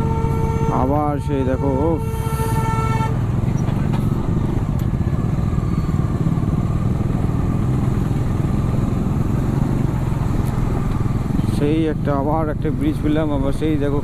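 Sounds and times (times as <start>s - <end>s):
motorcycle engine rumbling: 0.0s - 14.0s.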